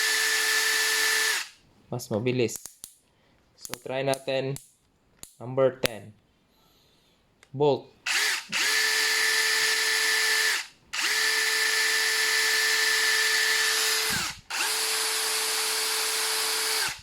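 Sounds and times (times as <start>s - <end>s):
drill spinning with steady whine: 0.0s - 1.6s, 8.1s - 17.0s.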